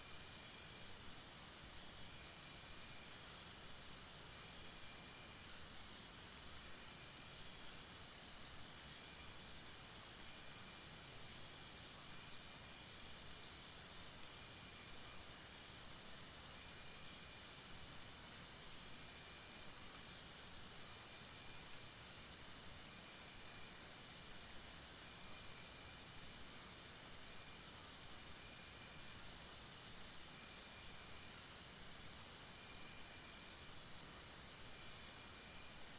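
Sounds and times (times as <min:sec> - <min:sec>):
crickets trilling: 0:15.5 - 0:35.9
very high insect chirps: 0:32.6 - 0:34.0.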